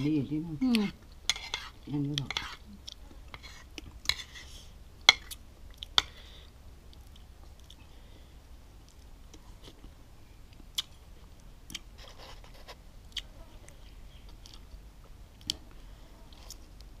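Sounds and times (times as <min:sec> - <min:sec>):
wet crunching and smacking chewing: 0:10.6 - 0:11.9, 0:13.1 - 0:14.7.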